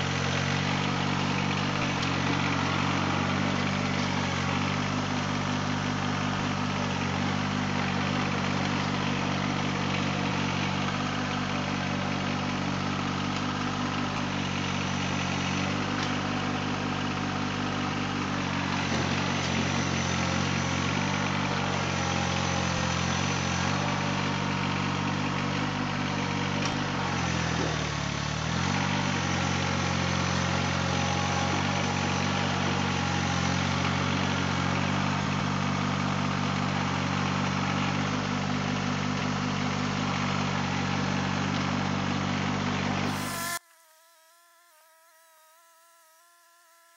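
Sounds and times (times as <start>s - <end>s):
tractor diesel engine running: 0.0s - 43.6s.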